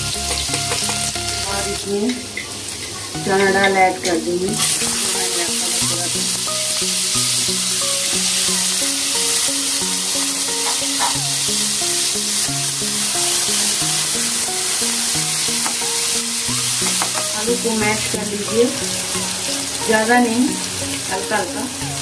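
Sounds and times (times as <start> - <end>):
background music: 0.0 - 22.0
lentils sizzling in hot oil: 0.0 - 22.0.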